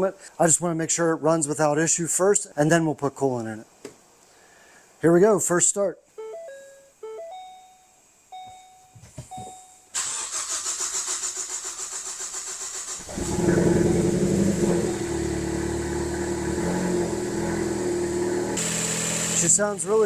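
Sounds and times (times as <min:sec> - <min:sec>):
short beeps: 0:06.2 - 0:09.9
car engine cranking and idling: 0:10.0 - 0:20.0.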